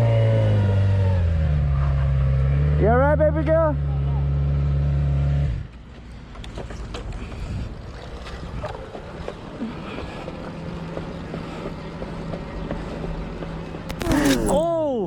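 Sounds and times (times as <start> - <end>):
wind noise on microphone: 7.0 - 8.8.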